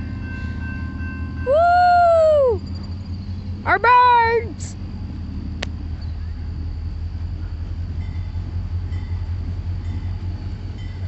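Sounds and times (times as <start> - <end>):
crossing bell dinging: 0.0 - 1.6, 7.4 - 11.0
freight train rumbling: 0.0 - 11.0.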